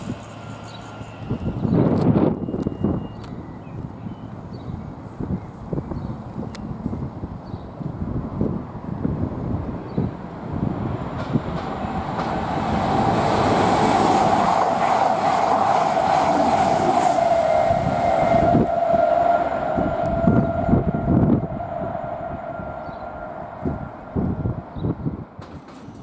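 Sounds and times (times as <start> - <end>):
train passing at speed: 0.0 - 26.0.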